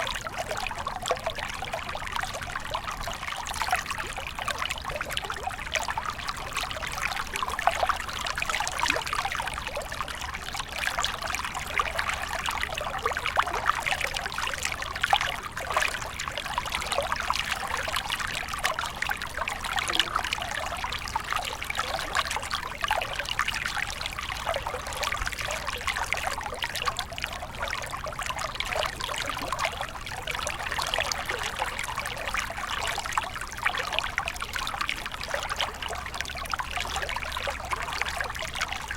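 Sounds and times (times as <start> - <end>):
stream flowing over stones: 0.0 - 38.9.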